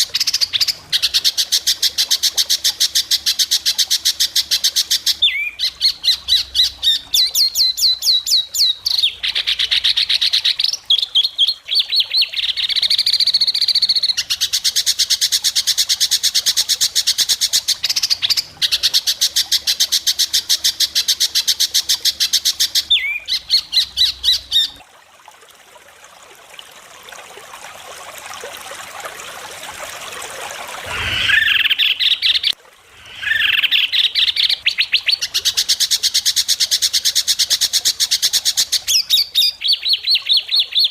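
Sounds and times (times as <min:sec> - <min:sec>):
bird singing rasping trills: 0:30.9 - 0:35.4.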